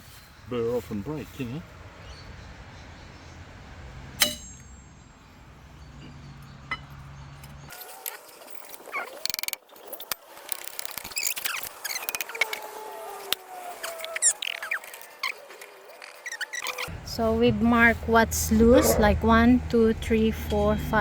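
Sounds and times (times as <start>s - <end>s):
sharp metal clang: 4.2s - 5.3s
steady low hum: 16.9s - 21.0s.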